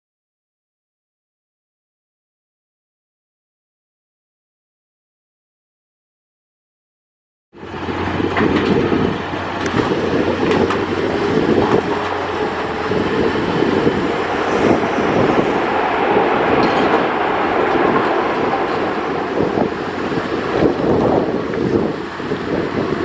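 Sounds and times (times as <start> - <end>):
loud jet engine rush: 7.6 - 23.0.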